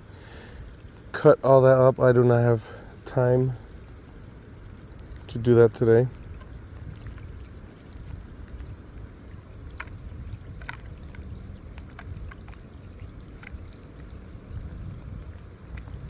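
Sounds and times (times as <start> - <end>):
water at the shore: 0.0 - 16.0
wind rumble on microphone: 4.0 - 16.0.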